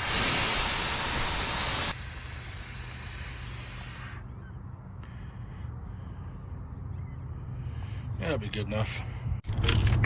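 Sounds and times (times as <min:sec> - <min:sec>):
compressed air hissing from valve: 0:00.0 - 0:04.3.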